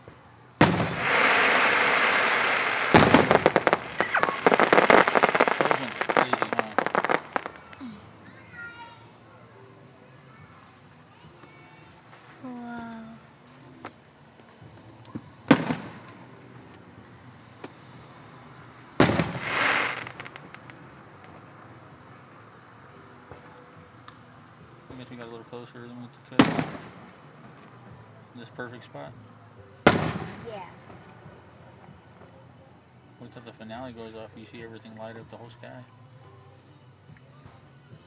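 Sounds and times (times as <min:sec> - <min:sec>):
fireworks banging and crackling: 0:00.0 - 0:09.2, 0:13.8 - 0:28.8, 0:29.6 - 0:32.5
crickets chirping: 0:00.0 - 0:38.0.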